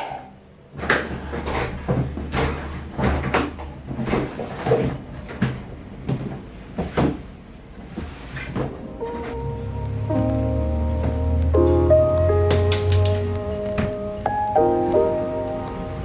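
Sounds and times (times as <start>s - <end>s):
cupboard doors opening and shutting: 0.0s - 16.0s
household items knocking and clattering: 0.8s - 9.4s.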